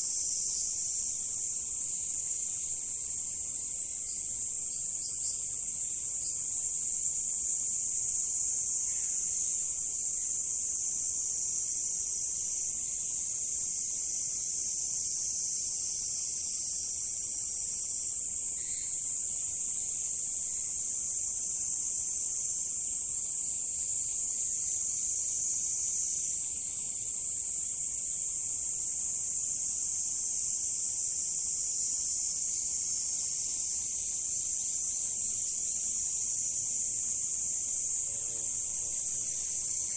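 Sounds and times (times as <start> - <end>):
faint short insect calls: 0.0 - 39.9
insect chorus buzzing: 0.0 - 39.9.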